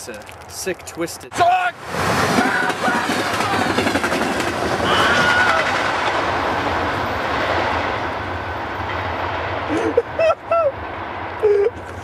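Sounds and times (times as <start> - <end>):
train wheels rumbling and rattling: 0.0 - 12.0.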